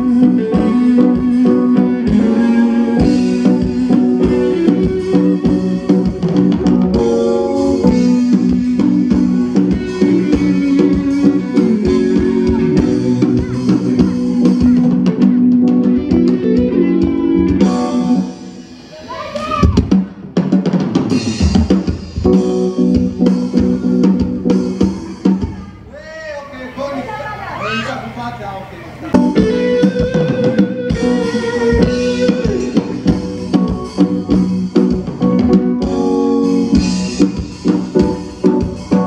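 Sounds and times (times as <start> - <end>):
band playing: 0.0 - 39.0
steady drum hits: 19.6 - 25.6.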